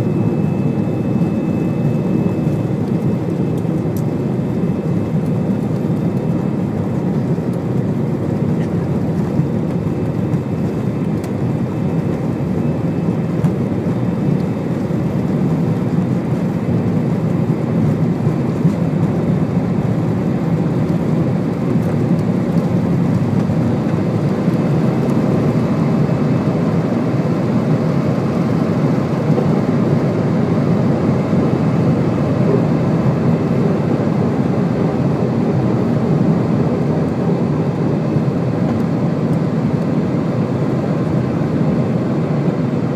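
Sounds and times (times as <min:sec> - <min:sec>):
jet engine and airflow rumble: 0:00.0 - 0:42.9.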